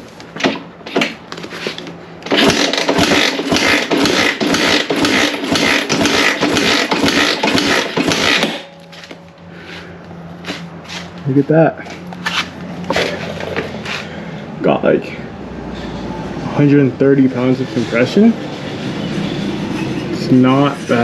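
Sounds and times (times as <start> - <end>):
engine cranking without starting: 2.2 - 8.8.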